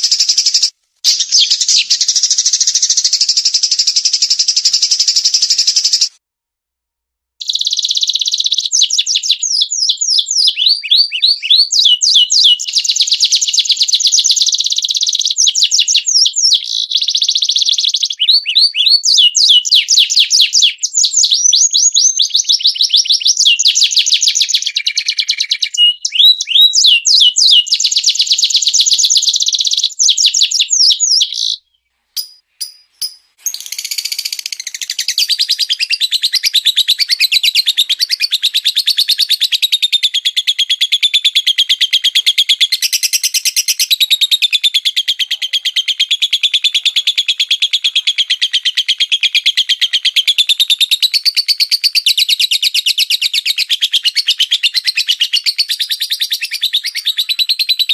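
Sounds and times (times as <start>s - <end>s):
songbird trilling: 0.0s - 6.1s, 7.4s - 13.2s, 14.4s - 27.9s, 29.2s - 41.0s.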